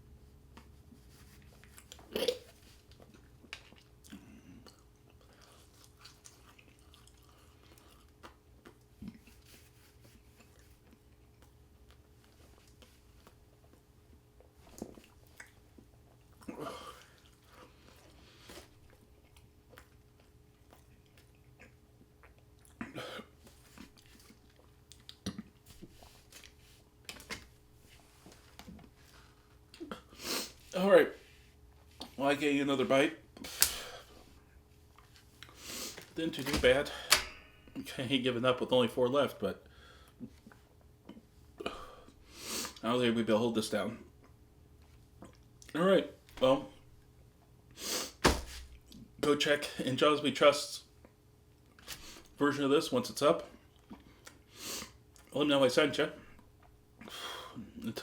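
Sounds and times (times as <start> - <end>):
person chewing food: 1.3 - 27.1, 33.4 - 36.2, 53.7 - 55.3.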